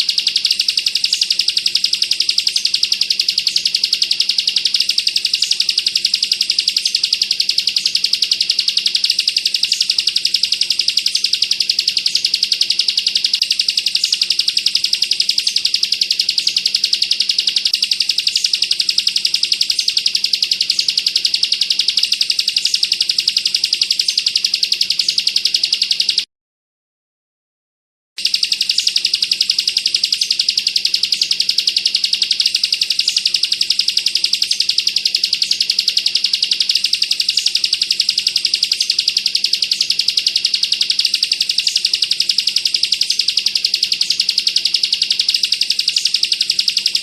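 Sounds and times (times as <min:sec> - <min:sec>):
bird fast high trill: 0:28.2 - 0:47.0.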